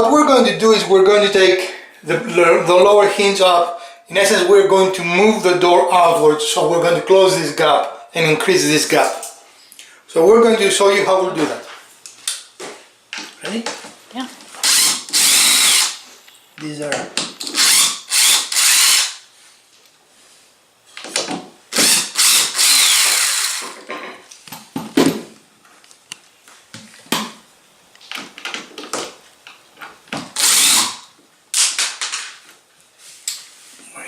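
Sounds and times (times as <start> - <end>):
power drill bursts: 14.6 - 16.0, 17.5 - 19.2, 21.7 - 23.8, 30.4 - 31.1.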